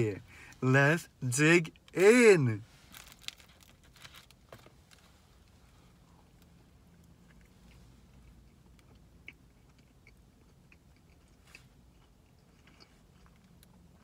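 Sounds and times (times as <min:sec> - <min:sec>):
low steady hum: 0:00.0 - 0:14.0
faint chewing: 0:06.0 - 0:14.0.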